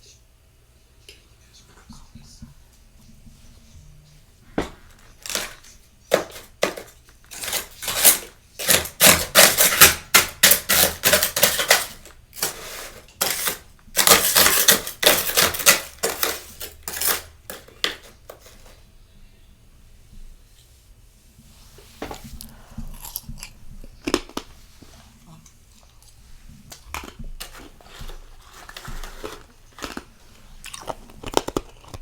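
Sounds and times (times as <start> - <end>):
freezer frost crunching: 4.5 - 18.8, 22.8 - 32.0.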